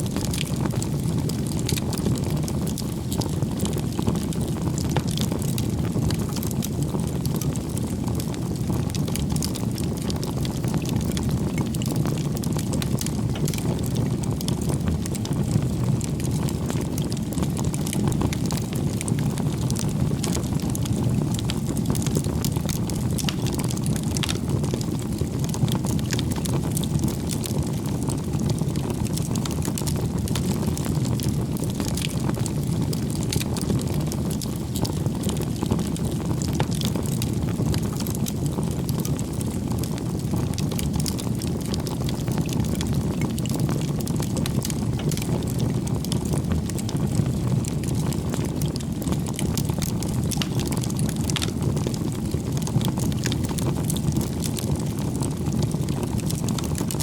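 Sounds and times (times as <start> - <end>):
fire crackling and popping: 0.0 - 57.0
rush of bonfire flames: 0.0 - 57.0.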